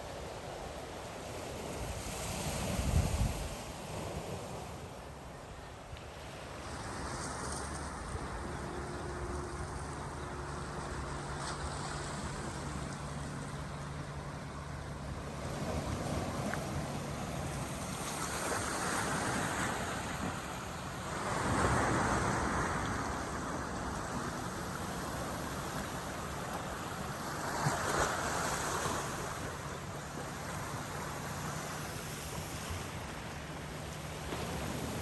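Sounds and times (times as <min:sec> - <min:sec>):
waves breaking: 0:00.0 - 0:35.0
wind on microphone: 0:01.8 - 0:04.4.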